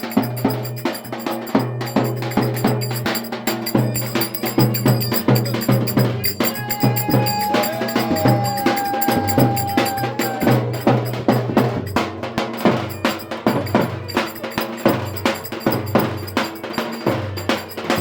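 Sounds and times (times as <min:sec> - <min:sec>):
folk dance music: 0:00.0 - 0:11.9
high held melody note: 0:00.0 - 0:12.0
fast dense drumming: 0:00.0 - 0:18.0.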